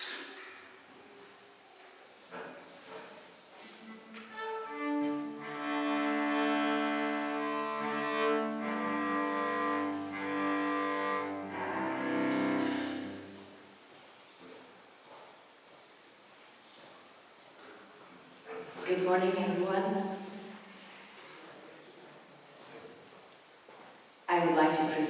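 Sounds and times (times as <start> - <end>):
cello: 3.7 - 13.6
violin: 3.8 - 13.4.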